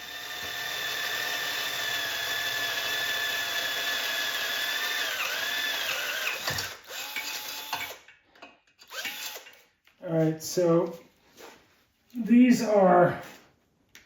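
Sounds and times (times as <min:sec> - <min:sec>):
electric drill whining: 0:00.0 - 0:08.1, 0:08.8 - 0:09.6.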